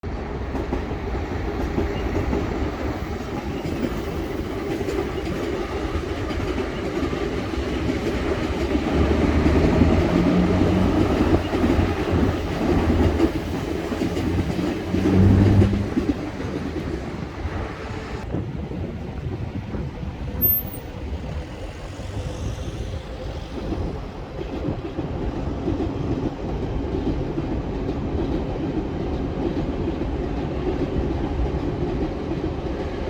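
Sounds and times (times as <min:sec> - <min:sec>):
metro train wheels clacking: 0:00.1 - 0:18.3, 0:20.0 - 0:33.0.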